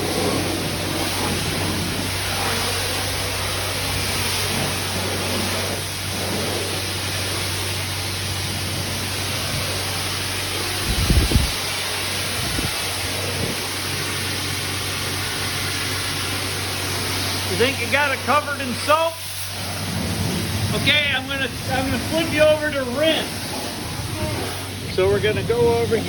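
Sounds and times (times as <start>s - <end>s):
pressure washer spraying hiss: 0.0s - 26.0s
steady low hum: 0.0s - 26.0s.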